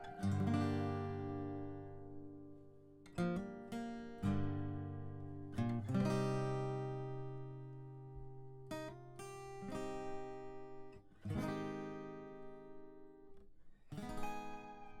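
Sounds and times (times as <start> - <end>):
acoustic guitar chords strummed: 0.0 - 8.4.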